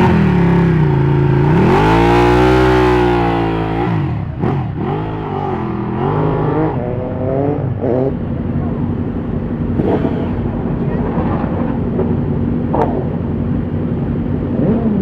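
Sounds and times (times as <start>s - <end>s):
motorcycle engine revving: 0.0s - 15.0s
exhaust pop: 9.6s - 13.7s.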